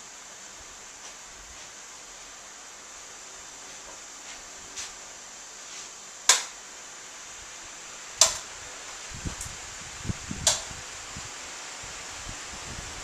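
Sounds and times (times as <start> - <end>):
fans whooshing air: 0.0 - 13.0
fan switch clicks: 6.3 - 6.6, 8.2 - 8.6, 10.3 - 10.8.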